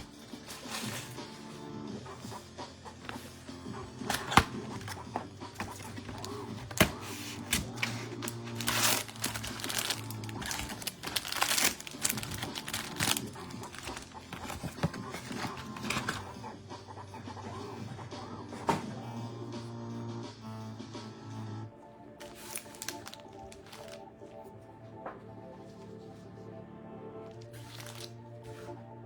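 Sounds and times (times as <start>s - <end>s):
background music: 0.0s - 29.0s
wrappers crinkling and tearing: 4.0s - 16.2s, 22.2s - 24.1s, 27.3s - 28.2s.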